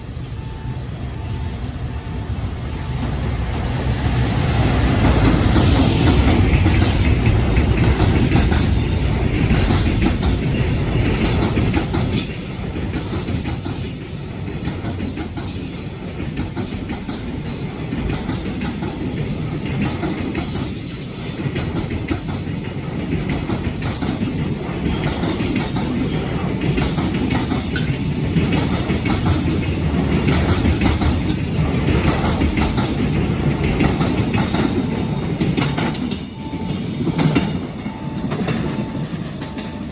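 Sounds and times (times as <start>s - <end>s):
freight train rumbling: 0.0s - 39.9s
wheels clattering over rail joints: 5.0s - 13.8s, 14.6s - 36.3s.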